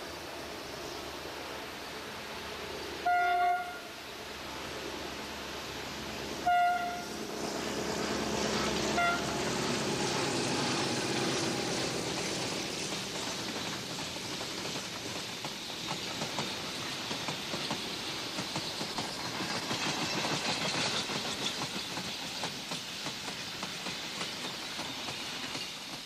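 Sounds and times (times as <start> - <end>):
diesel train rumbling: 0.0 - 26.0
wheels clicking over rails: 7.6 - 26.0.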